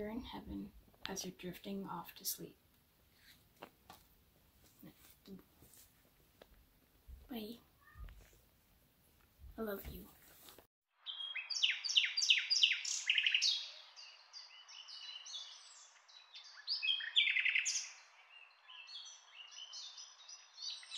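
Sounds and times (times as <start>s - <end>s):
songbird singing trills: 11.0s - 20.9s.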